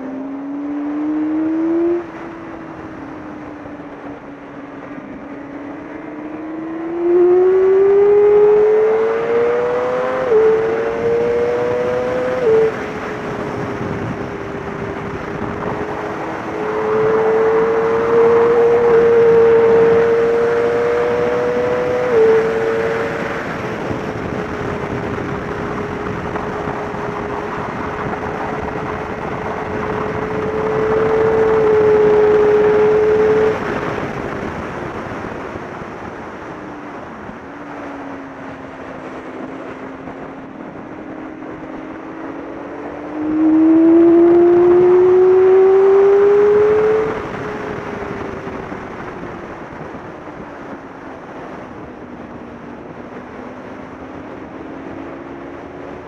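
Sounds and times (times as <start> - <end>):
motorcycle engine at high revs: 0.0 - 37.8, 38.4 - 56.0
wind rushing over microphone: 0.0 - 56.0.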